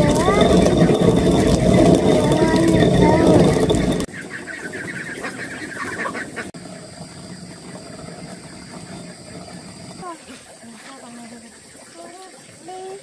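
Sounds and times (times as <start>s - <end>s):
loud noise: 0.0s - 4.1s.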